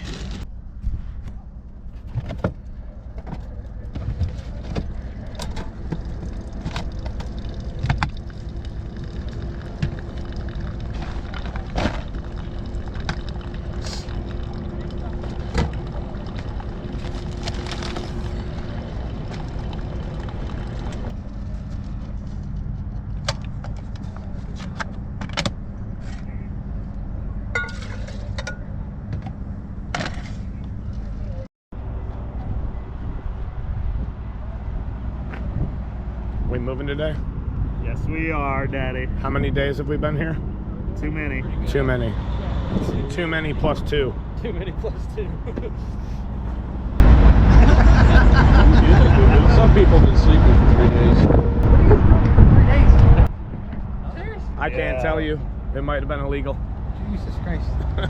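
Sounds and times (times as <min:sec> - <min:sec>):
vehicle engine idling: 0:02.7 - 0:37.7.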